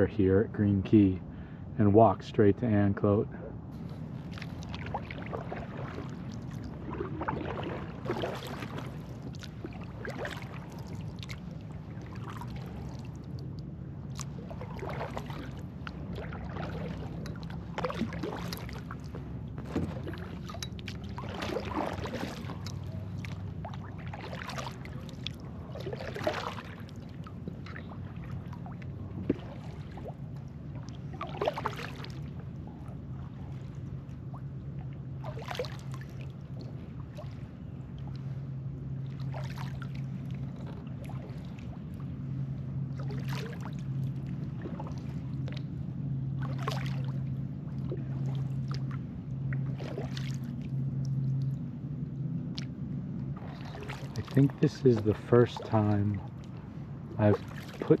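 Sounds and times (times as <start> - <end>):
steady low hum: 0.0 - 58.0
paddle splashing water: 3.7 - 51.6, 52.5 - 58.0.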